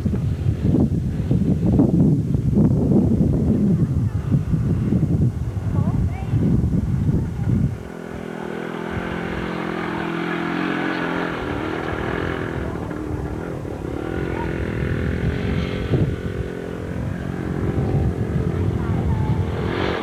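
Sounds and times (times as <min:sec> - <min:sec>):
dirt bike engine revving: 0:06.4 - 0:20.0.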